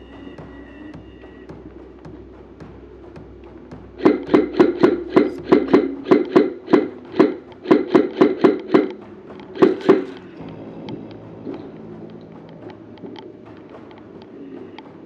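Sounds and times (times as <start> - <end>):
airsoft rifle shots: 4.0 - 9.0.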